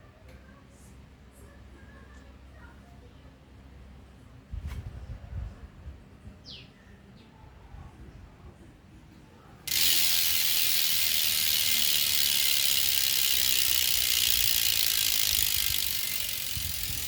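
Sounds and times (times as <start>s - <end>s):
faint birdsong: 6.4s - 7.4s
bicycle freewheel ratchet buzzing: 9.7s - 17.0s.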